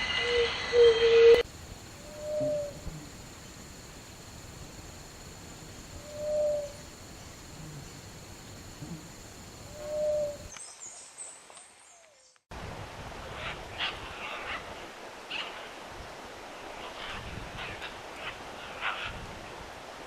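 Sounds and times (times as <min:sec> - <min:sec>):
low hooted bird note: 0:02.0 - 0:02.9.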